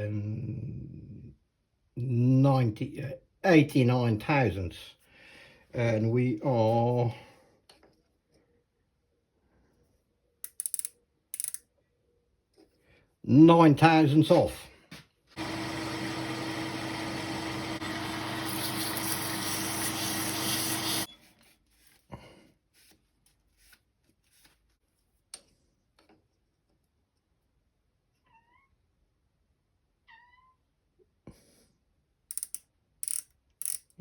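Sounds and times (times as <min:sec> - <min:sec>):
metal lathe humming: 0:15.4 - 0:21.1
cat meowing: 0:30.0 - 0:30.6.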